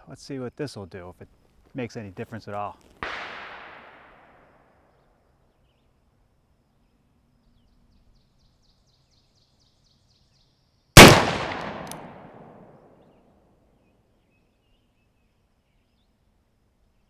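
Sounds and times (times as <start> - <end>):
revolver gunshot with echo: 3.0 - 4.4, 11.0 - 12.9.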